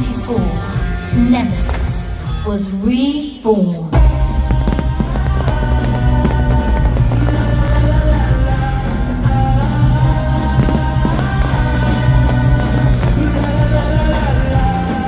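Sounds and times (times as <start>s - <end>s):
orchestral rock music over loudspeakers: 0.0s - 15.0s
choir-like singing: 4.0s - 15.0s.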